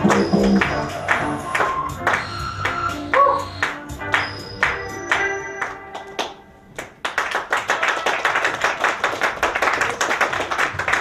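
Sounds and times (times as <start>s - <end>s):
audience applause: 0.0s - 2.9s, 3.6s - 11.0s
music notes ringing out: 0.0s - 6.8s.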